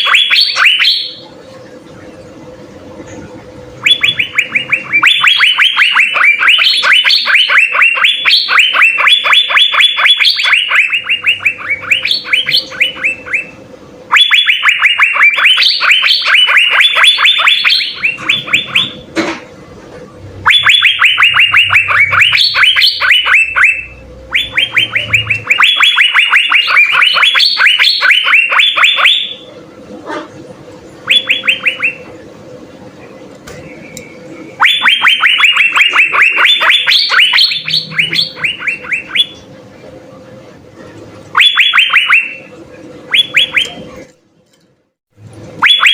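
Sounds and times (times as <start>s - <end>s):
bird singing rapid notes: 3.8s - 19.0s, 20.4s - 29.4s, 31.0s - 32.1s, 33.6s - 39.5s.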